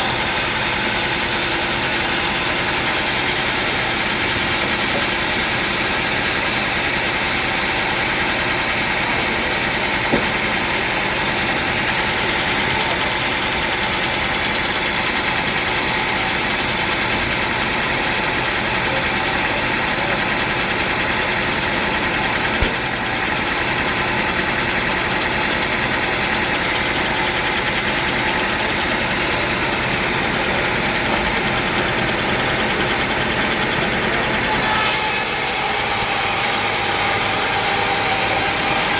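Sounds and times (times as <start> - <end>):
sawmill machinery humming: 0.0 - 38.9
sharp knock: 10.1 - 10.6, 22.6 - 23.0.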